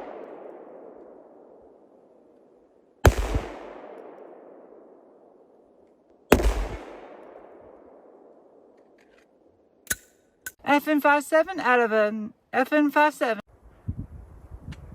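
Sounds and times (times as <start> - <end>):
pistol shots with echo: 3.0 - 5.4, 6.3 - 8.7.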